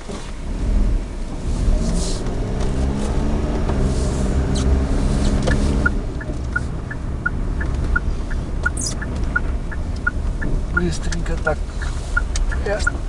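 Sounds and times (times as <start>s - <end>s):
car engine hum inside cabin: 0.0s - 13.0s
turn signal ticking: 2.2s - 13.0s.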